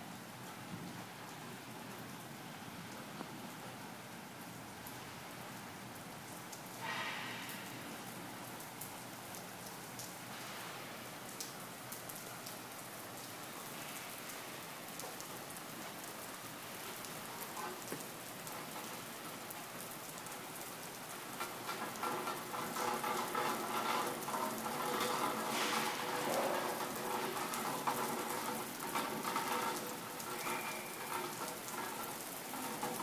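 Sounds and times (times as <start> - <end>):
heavy rain pouring: 0.0 - 33.0
raindrops ticking: 7.5 - 10.4, 11.1 - 33.0.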